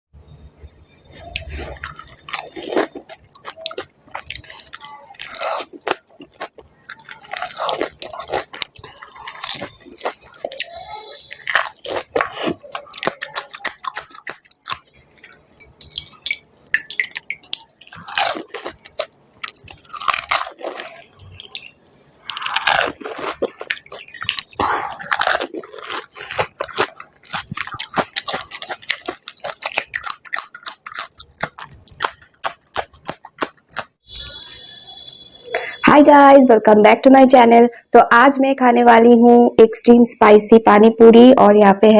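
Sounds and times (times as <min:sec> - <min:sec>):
crunchy food chewing: 0:01.1 - 0:34.0.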